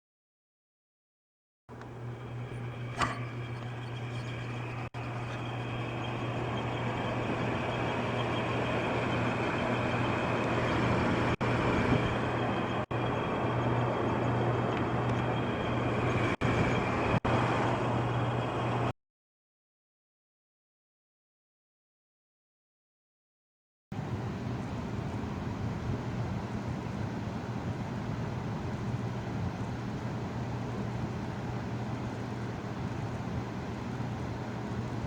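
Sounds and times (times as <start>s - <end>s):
air conditioner humming: 1.7s - 18.9s.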